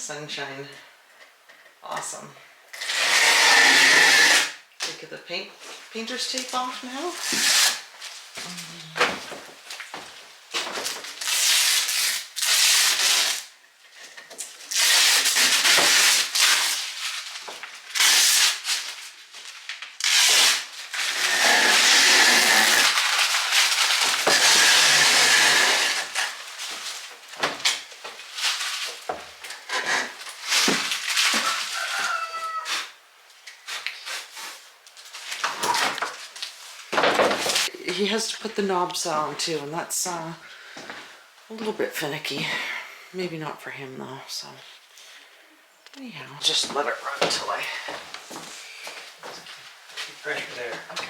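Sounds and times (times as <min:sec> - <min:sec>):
tape being peeled off: 0:02.8 - 0:04.6, 0:07.2 - 0:08.6, 0:10.8 - 0:13.6, 0:14.4 - 0:37.7.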